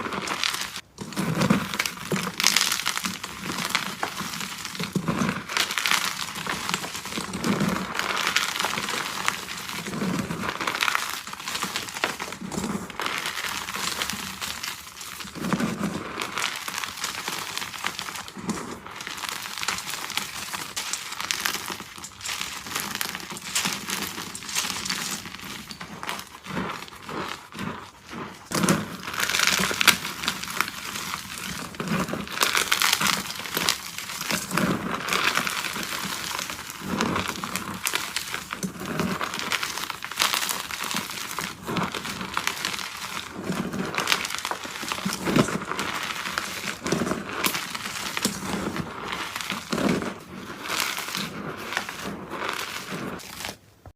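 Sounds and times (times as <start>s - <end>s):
chalk crunching: 0.0s - 53.9s.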